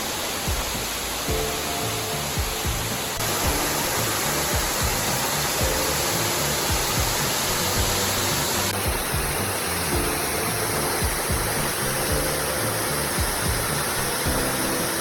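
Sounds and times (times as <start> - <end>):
soft background music: 0.0 - 15.0
waterfall rushing: 0.0 - 15.0.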